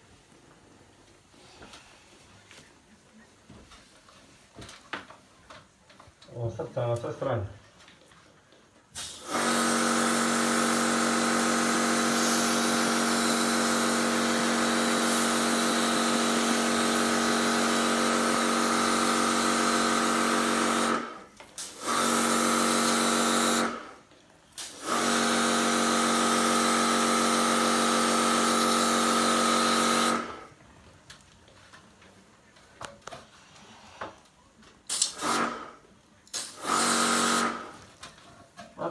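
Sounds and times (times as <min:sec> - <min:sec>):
pressure washer motor hum: 0:09.0 - 0:24.0, 0:24.6 - 0:30.5, 0:34.9 - 0:35.7, 0:36.4 - 0:37.8.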